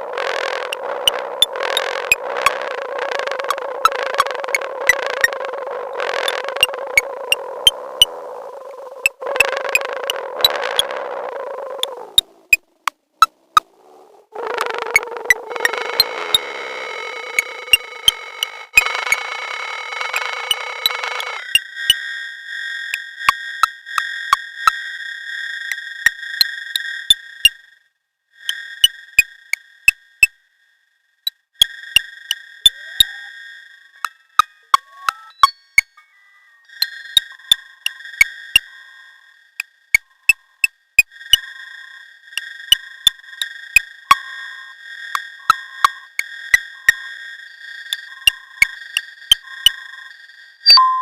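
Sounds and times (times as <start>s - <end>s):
sharp percussive synth clicks: 0.2s - 8.1s, 9.0s - 10.9s, 17.2s - 22.0s, 34.0s - 36.0s, 45.2s - 47.0s, 48.0s - 49.8s
high pure synth tone: 14.8s - 21.6s, 32.7s - 37.4s, 50.6s - 51.0s
short low beeps: 34.0s - 37.4s, 50.6s - 51.0s.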